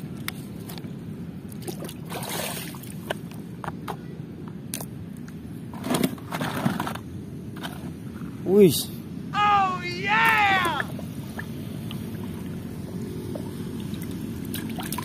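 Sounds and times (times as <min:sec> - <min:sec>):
steady low rumble: 0:10.8 - 0:15.0.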